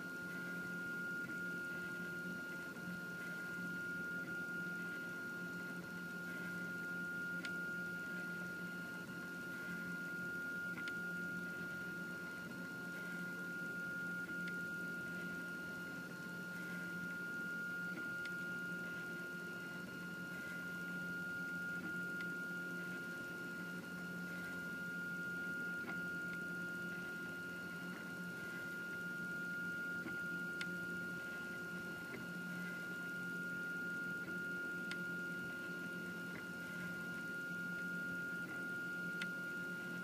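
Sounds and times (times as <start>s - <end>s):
printer high whine: 0.0s - 40.0s.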